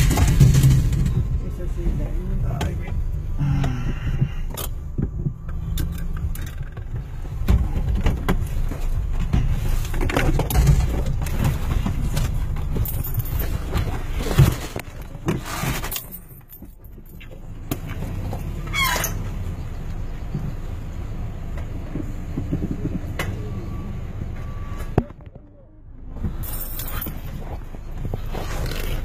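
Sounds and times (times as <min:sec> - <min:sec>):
car engine idling: 0:00.0 - 0:15.2
rustling and clicking handling noise: 0:04.2 - 0:18.1.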